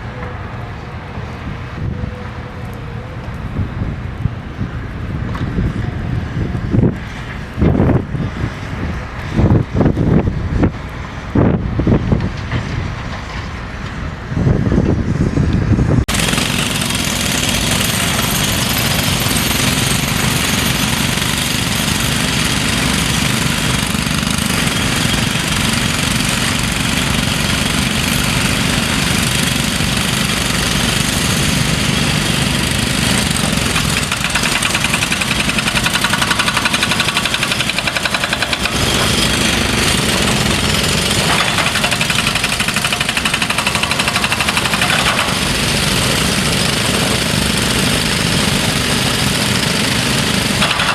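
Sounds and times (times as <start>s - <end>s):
excavator diesel engine: 0.0s - 7.8s, 15.8s - 50.9s
hydraulic breaker hammering: 16.1s - 50.9s.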